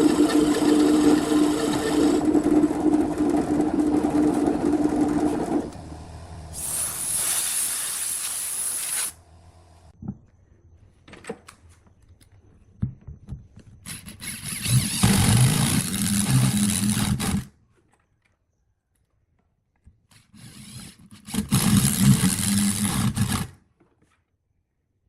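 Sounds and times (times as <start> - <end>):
wood lathe cutting wood: 0.0 - 5.8, 14.3 - 17.4
low motor hum: 0.0 - 6.6.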